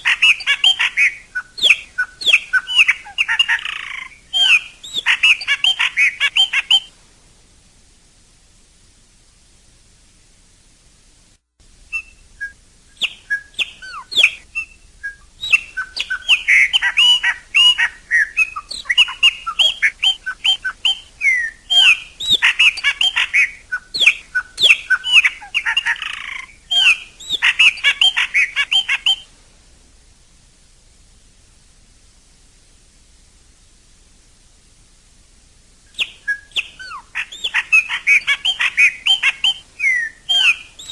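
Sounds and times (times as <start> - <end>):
blackbird singing: 0.0 - 6.9, 11.9 - 29.3, 36.0 - 40.9.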